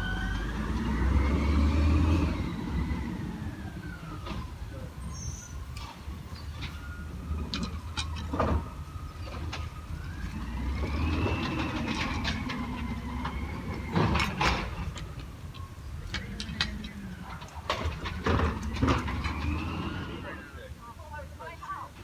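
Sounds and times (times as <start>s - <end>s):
hydraulic whine: 0.0s - 20.7s
garbage truck diesel engine: 0.0s - 22.0s.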